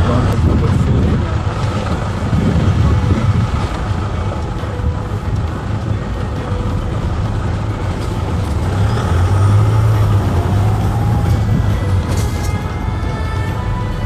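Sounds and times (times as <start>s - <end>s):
van engine and road rumble: 0.0s - 14.0s.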